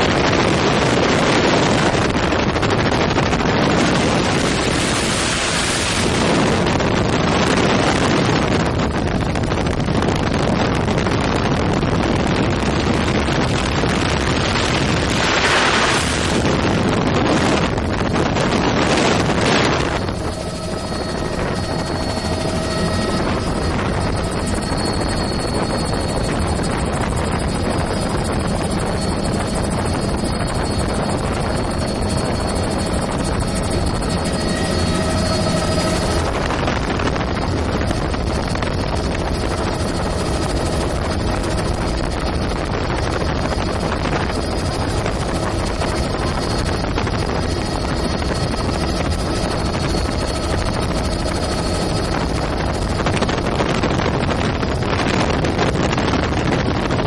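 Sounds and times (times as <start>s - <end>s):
helicopter engine and rotors droning: 0.0s - 57.0s
loud rushing noise: 4.0s - 6.8s, 13.5s - 24.2s.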